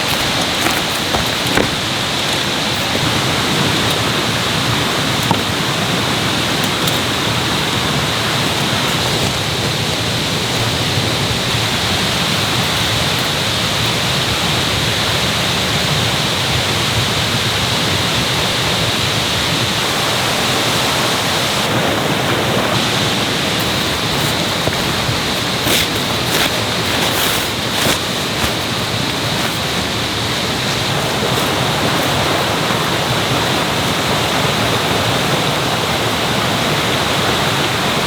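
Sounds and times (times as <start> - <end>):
mountain stream rushing: 0.0 - 38.0.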